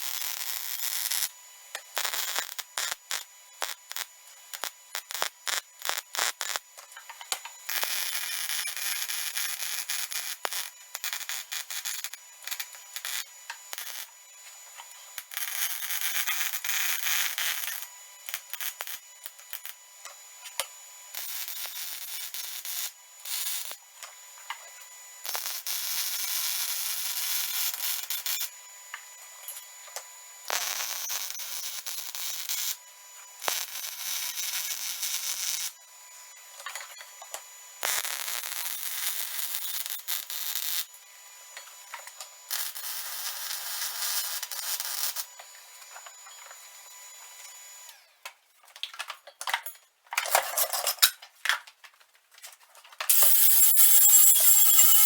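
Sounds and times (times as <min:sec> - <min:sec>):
welding arc crackling: 0:00.0 - 0:06.6, 0:07.7 - 0:14.1, 0:15.2 - 0:19.8, 0:21.2 - 0:23.8, 0:25.2 - 0:28.4, 0:53.1 - 0:55.0.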